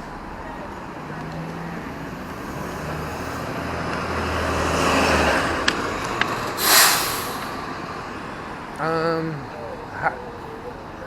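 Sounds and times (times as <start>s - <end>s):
vehicle passing: 0.0s - 11.0s
brief loud hiss: 6.6s - 7.6s.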